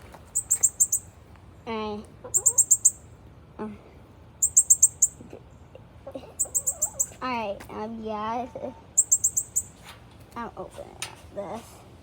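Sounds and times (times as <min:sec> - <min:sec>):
bird chirping trills: 0:00.3 - 0:01.1, 0:02.3 - 0:03.1, 0:04.4 - 0:05.2, 0:06.4 - 0:07.2, 0:09.0 - 0:09.8.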